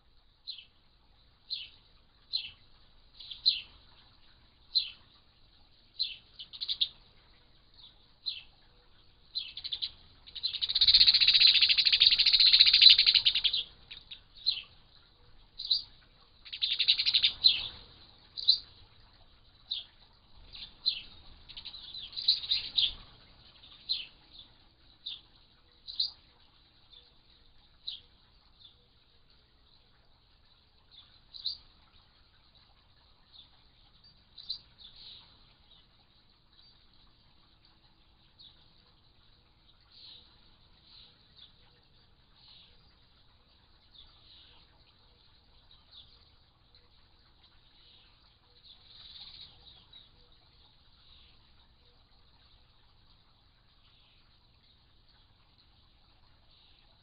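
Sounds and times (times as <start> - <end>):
bird chirping: 0.4 - 0.8, 1.4 - 57.0
bird rapid chattering: 6.0 - 6.9, 9.4 - 14.8, 15.6 - 18.8, 20.5 - 24.4.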